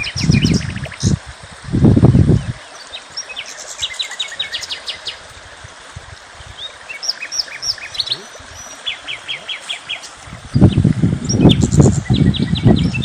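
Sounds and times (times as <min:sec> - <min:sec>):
low rumble on microphone: 0:00.0 - 0:02.6, 0:10.2 - 0:13.0
small birds chirping: 0:02.2 - 0:05.3, 0:06.4 - 0:13.0.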